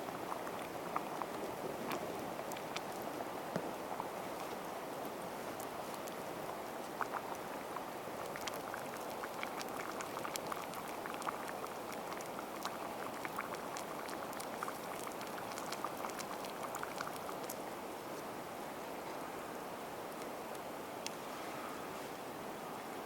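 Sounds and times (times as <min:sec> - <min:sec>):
campfire crackling and popping: 0:00.1 - 0:17.7.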